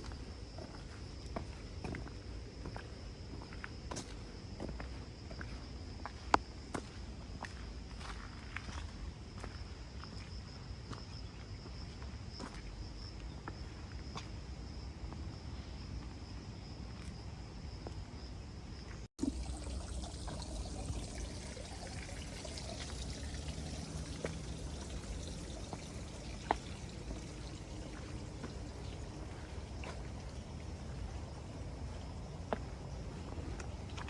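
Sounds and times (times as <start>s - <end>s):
water trickling: 19.2s - 32.1s
high insect drone: 19.4s - 31.4s.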